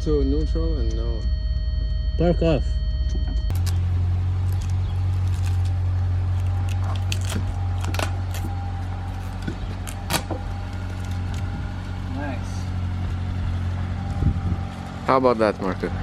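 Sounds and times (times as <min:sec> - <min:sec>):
steady low hum: 0:00.0 - 0:14.7
clicks and crackles: 0:03.1 - 0:03.8, 0:04.4 - 0:08.5.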